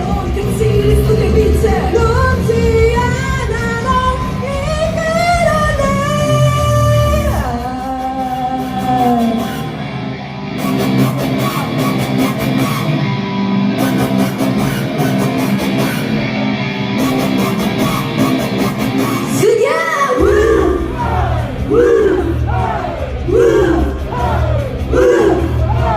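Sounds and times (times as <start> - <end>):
electric guitar: 0.0 - 19.6
rock pop music through speakers: 0.0 - 25.9
shouted voices: 19.2 - 25.9.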